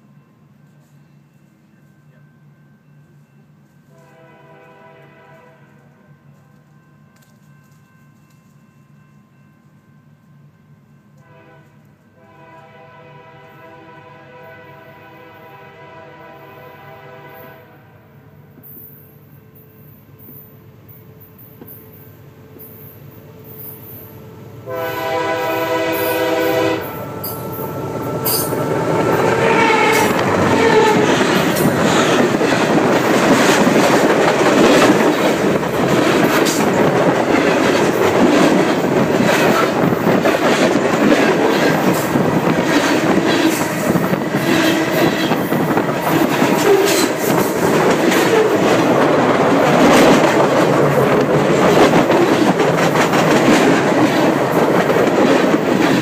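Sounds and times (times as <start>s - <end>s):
train horn: 3.8s - 7.3s, 11.2s - 18.1s, 24.6s - 32.4s, 46.0s - 47.4s, 48.2s - 49.0s
train wheels rumbling on rails: 20.2s - 56.0s.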